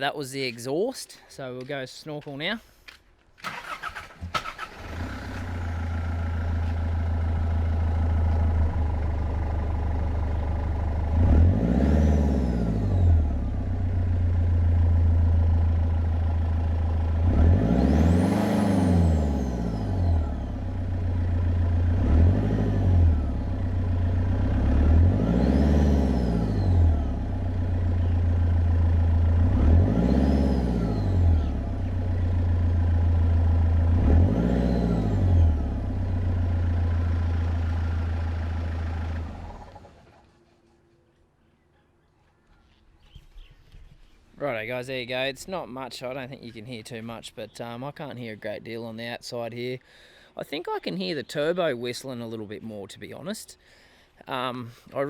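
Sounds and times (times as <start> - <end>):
diesel engine starting and revving: 3.4 - 40.4.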